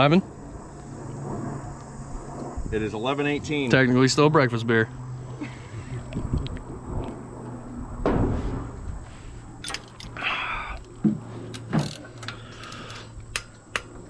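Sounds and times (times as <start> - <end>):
low hum: 0.0 - 14.0
tools and metal parts clicking: 9.6 - 10.2, 10.8 - 14.0.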